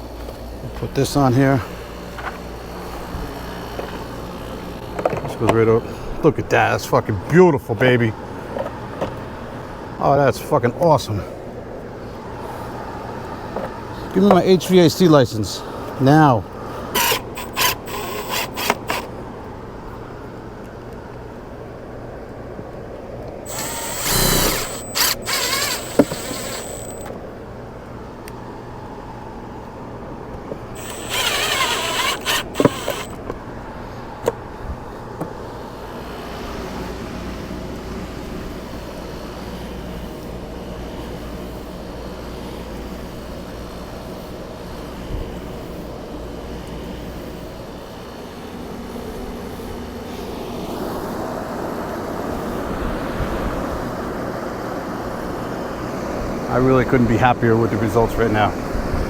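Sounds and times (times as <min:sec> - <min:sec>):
steady machine hum: 0:00.0 - 0:20.4, 0:22.0 - 0:48.0
power drill whining: 0:16.9 - 0:19.1, 0:23.5 - 0:27.2, 0:30.7 - 0:33.2.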